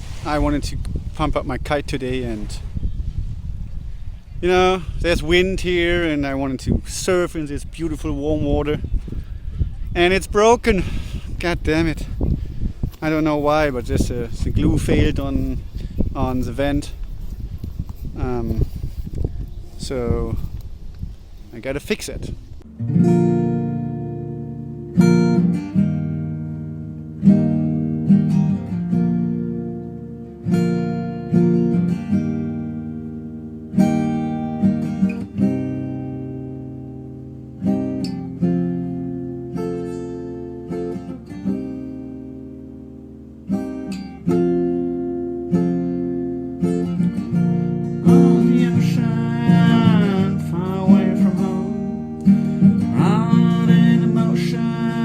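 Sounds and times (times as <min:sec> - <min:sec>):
acoustic guitar strumming: 0:22.6 - 0:55.0
person singing: 0:48.0 - 0:52.2, 0:52.8 - 0:55.0.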